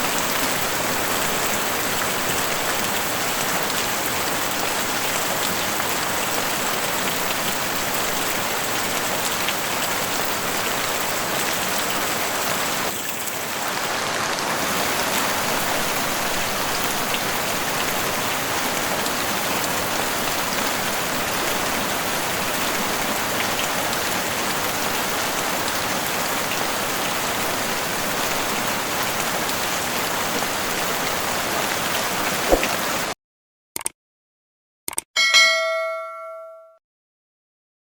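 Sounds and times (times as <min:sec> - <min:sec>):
heavy rain on a roof: 0:00.0 - 0:33.2
short blip: 0:32.5 - 0:32.8.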